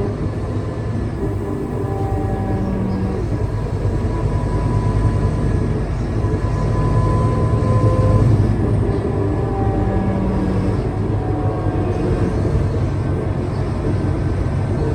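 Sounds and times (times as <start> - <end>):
bus engine rumble: 0.0 - 14.9
thin whine: 1.2 - 13.6.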